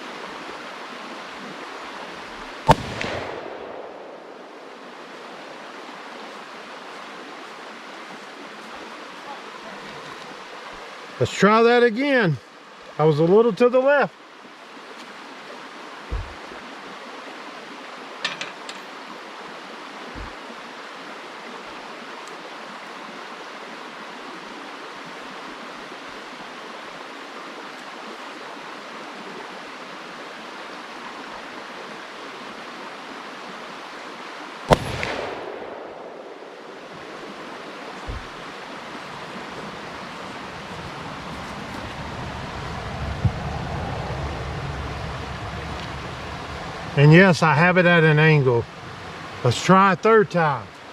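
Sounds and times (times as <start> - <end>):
handgun shot: 2.7 - 3.9, 34.7 - 36.2
steady rushing noise: 16.1 - 16.6, 34.8 - 50.7.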